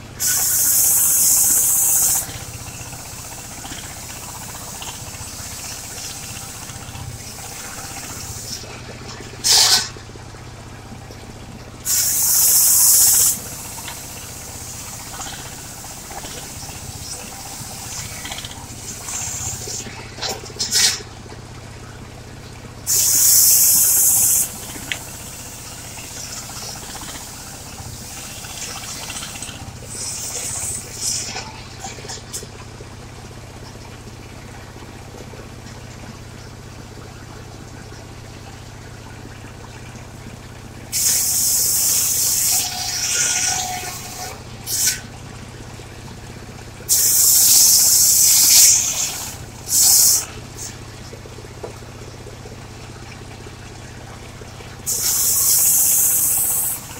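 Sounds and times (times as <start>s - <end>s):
sawmill running with low hum: 0.0s - 56.9s
blade hissing through wood: 0.2s - 2.3s, 11.8s - 19.8s, 22.9s - 25.3s, 29.9s - 31.3s, 40.9s - 45.0s, 46.9s - 50.7s, 54.9s - 56.9s.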